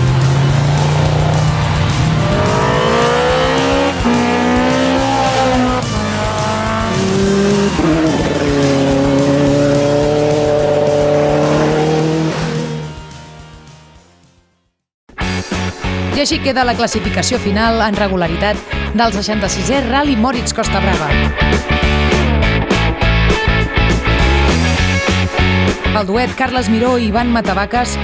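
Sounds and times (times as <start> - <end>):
rally car engine revving hard: 0.0 - 13.2
background music: 0.0 - 28.0.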